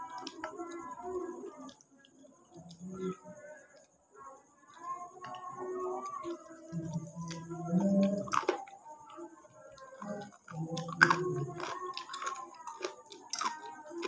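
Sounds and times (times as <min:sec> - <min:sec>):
person chewing: 0:06.0 - 0:08.8, 0:09.8 - 0:14.0.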